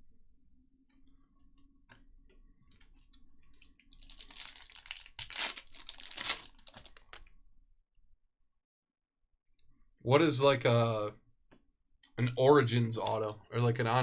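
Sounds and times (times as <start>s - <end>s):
foil wrapper crinkling and tearing: 3.5s - 7.3s.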